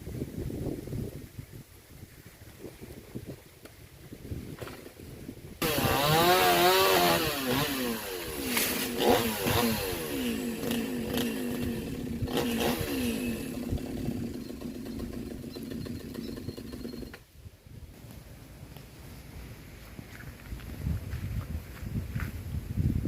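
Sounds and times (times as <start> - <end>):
chainsaw revving and cutting: 5.6 - 17.2.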